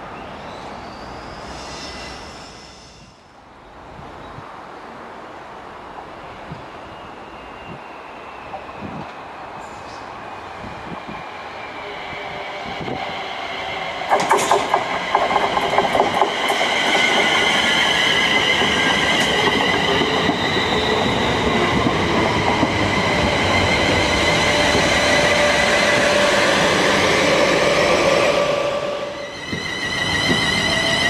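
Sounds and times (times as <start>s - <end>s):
steam locomotive beats: 12.3s - 31.0s.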